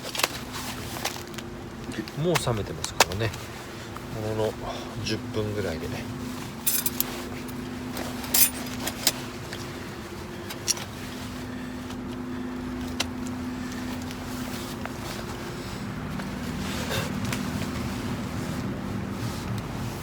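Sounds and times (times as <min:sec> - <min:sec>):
steady low hum: 0:00.0 - 0:20.0
camping gear clinking and rattling: 0:06.4 - 0:09.8, 0:10.4 - 0:11.4.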